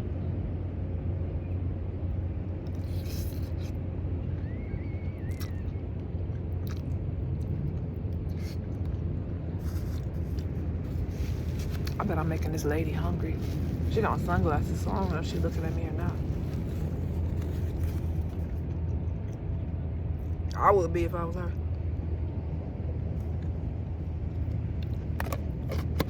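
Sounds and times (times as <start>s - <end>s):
steady low rumble: 0.0s - 26.0s
person chewing: 2.6s - 3.8s, 5.3s - 12.1s
wet mouth clicks: 5.3s - 5.8s, 6.4s - 7.5s.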